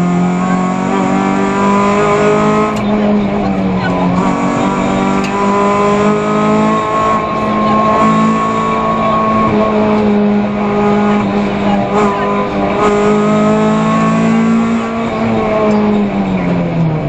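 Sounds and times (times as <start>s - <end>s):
rally car engine from inside cabin: 0.0s - 17.0s.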